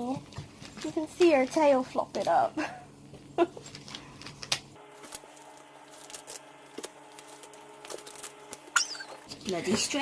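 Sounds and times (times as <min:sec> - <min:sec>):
plastic wrapping rustling: 0:00.0 - 0:02.5, 0:03.6 - 0:10.0
toy squeak: 0:08.7 - 0:09.2.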